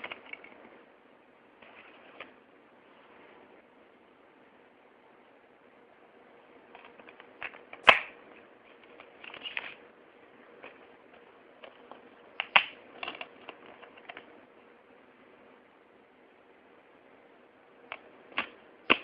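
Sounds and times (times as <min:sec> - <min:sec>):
sharp plastic snaps: 0:06.8 - 0:08.2, 0:12.4 - 0:14.3, 0:17.9 - 0:19.0.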